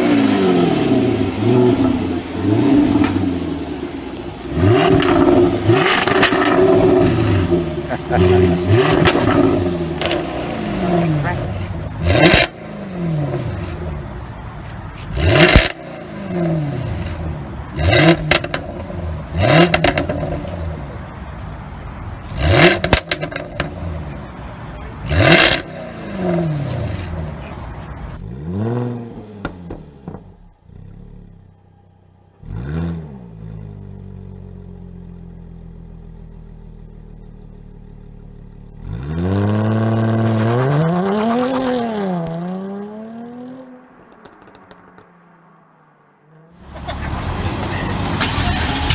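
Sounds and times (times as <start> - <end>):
car engine revving and idling: 0.0 - 48.9
sharp exhaust pops: 4.8 - 7.2, 15.4 - 15.8, 18.1 - 18.6, 19.6 - 20.5, 22.6 - 23.7, 44.0 - 45.1.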